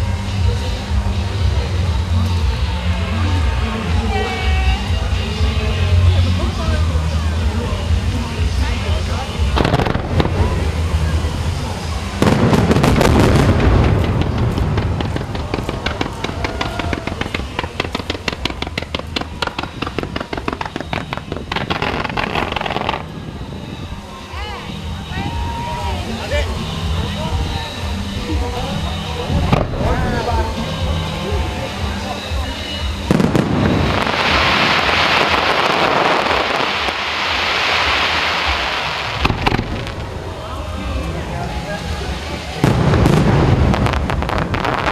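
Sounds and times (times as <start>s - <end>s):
fireworks crackling pops: 9.4s - 23.2s, 33.0s - 41.1s, 41.9s - 44.9s
firework shell booming: 12.2s - 23.0s, 33.1s - 40.2s, 42.6s - 44.9s.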